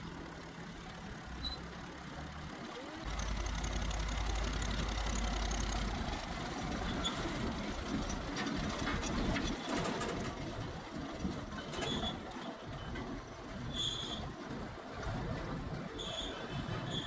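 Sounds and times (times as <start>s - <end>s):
heavy machinery engine rumble: 0.0s - 17.0s
rough clattering with knocks: 6.7s - 13.4s.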